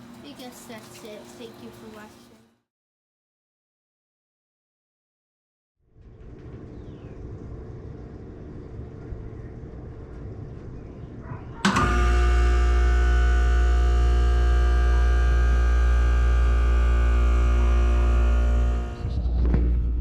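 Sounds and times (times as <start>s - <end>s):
heat pump humming: 0.0s - 2.5s, 6.4s - 19.0s
loud humming drone: 6.0s - 20.0s.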